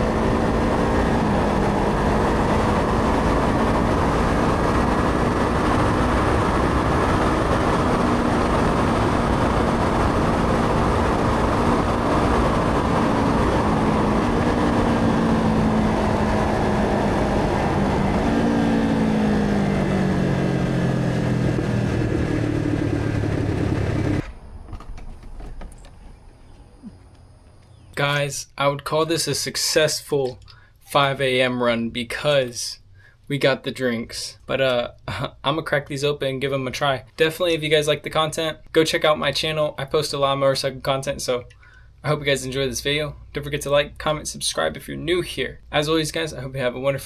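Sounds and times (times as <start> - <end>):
motorcycle engine running: 0.0 - 24.2.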